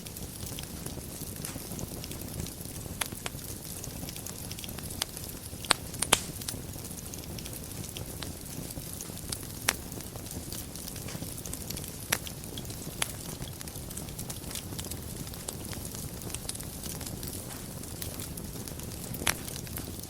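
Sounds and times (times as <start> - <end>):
fire crackles and pops: 0.0 - 20.0
wood fire rumbling: 0.0 - 20.0.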